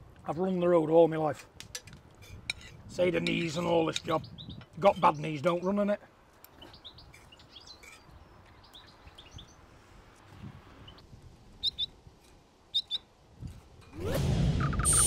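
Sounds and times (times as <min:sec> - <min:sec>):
outdoor background noise: 0:00.0 - 0:15.0
small birds chirping: 0:03.2 - 0:12.0, 0:12.7 - 0:13.1.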